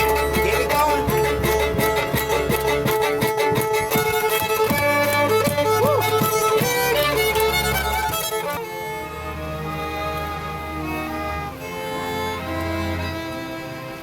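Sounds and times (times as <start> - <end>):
fiddle music with steady beat: 0.0 - 14.0.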